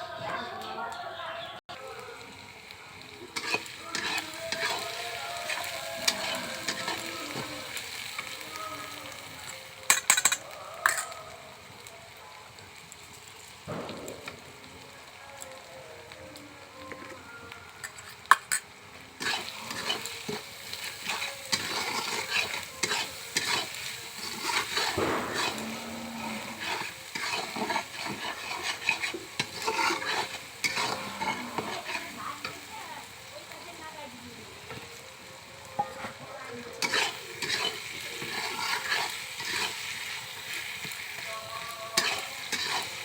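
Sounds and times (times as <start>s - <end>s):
food sizzling in a pan: 0.0s - 43.0s
utensil scraping a pan: 3.4s - 7.6s, 17.8s - 32.6s, 36.8s - 41.0s, 41.8s - 43.0s.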